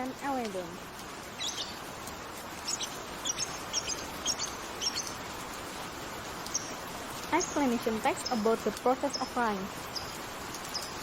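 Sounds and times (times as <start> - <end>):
steady background hiss: 0.0 - 11.0
small bird chirping: 1.3 - 1.8, 2.6 - 5.2, 6.5 - 6.8, 7.4 - 11.0.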